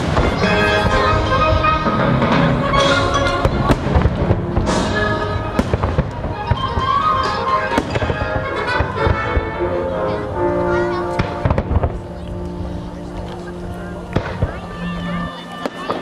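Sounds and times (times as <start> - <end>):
fireworks bangs: 0.0 - 9.7, 11.0 - 12.2, 14.1 - 16.0
orchestral soundtrack: 0.0 - 16.0.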